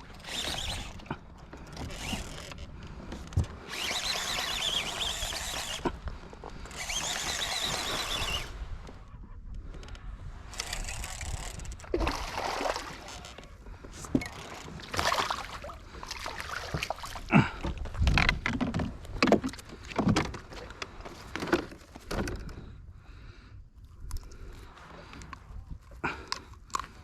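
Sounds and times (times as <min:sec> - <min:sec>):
knocks and splashes in small boat: 0:11.3 - 0:22.8.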